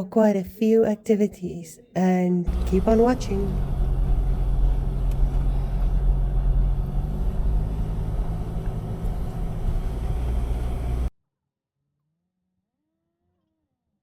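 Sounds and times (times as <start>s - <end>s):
vehicle engine and road noise: 2.5s - 11.1s.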